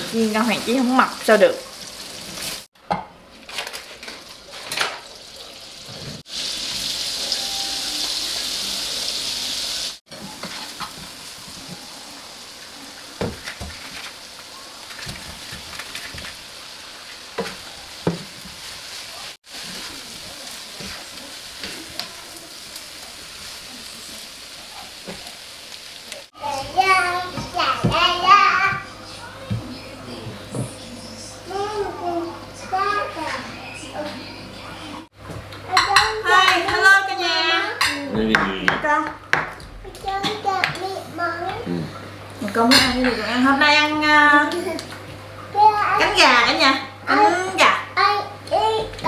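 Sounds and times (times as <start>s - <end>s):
chicken wings sizzling in oil: 0.0s - 2.7s, 4.4s - 27.3s.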